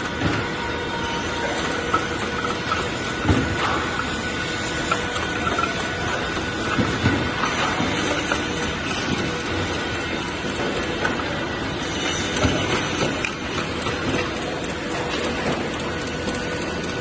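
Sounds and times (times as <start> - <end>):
rip saw machine running: 0.0 - 17.0.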